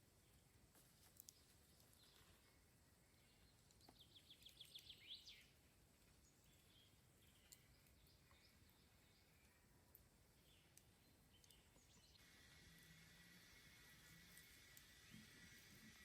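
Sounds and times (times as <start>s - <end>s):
faint bird song: 0.0s - 16.0s.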